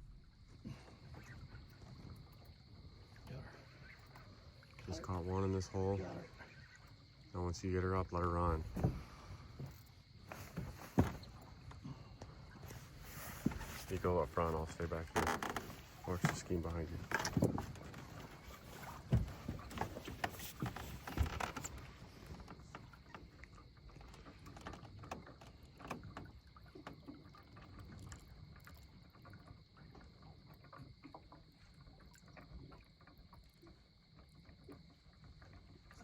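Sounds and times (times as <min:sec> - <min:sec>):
hollow knocks in boat: 0:08.1 - 0:28.2.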